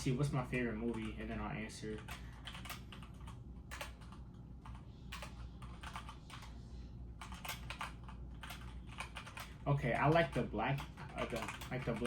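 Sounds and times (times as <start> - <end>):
low steady hum: 0.0 - 12.0
keyboard keys clicking: 2.0 - 6.5, 7.2 - 12.0.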